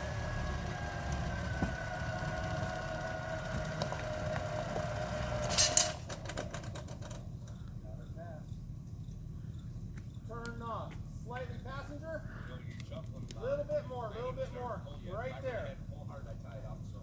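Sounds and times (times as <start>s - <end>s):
electric winch motor whining: 0.0s - 7.2s
truck engine idling: 0.0s - 17.0s.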